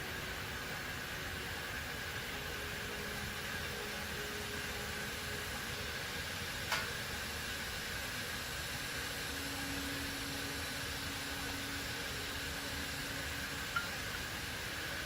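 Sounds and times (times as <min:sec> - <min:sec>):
workshop background hiss: 0:00.0 - 0:15.0
sharp click: 0:06.7 - 0:06.9.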